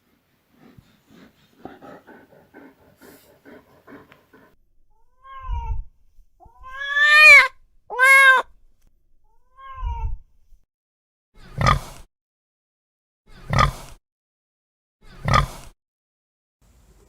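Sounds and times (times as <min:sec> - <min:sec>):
cat meowing: 0:05.1 - 0:05.9, 0:06.5 - 0:08.5, 0:09.4 - 0:10.2.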